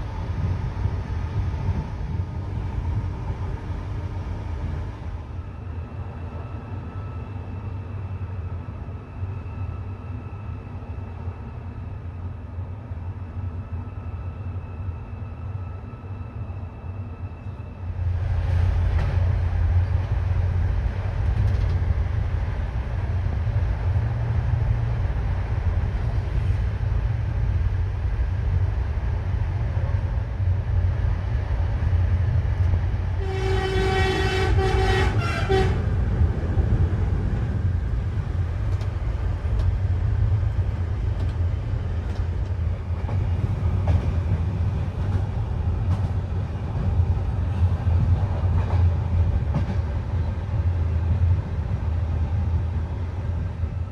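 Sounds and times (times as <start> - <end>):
train rumbling: 0.0 - 53.9
train horn: 33.2 - 35.9.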